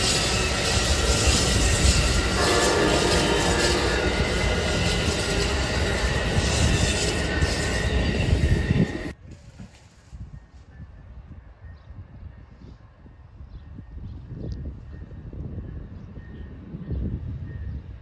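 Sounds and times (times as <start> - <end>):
faint wheel squeal: 0.0 - 9.2
rail cars rumbling: 0.0 - 9.2.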